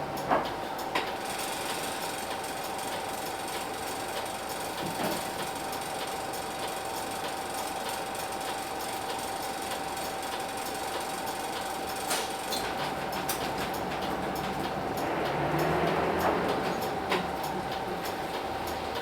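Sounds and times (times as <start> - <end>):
bus diesel engine rattling: 11.1 - 19.0.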